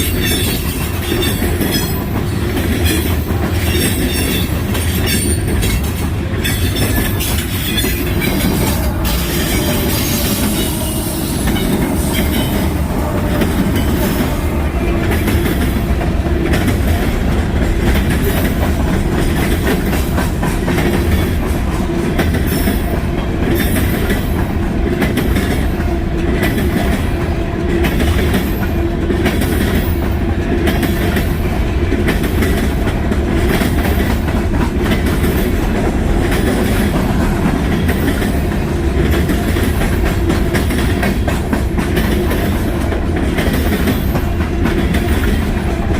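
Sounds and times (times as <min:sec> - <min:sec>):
wheels clattering over rail joints: 0:00.0 - 0:10.8
freight train rolling past: 0:00.0 - 0:45.9.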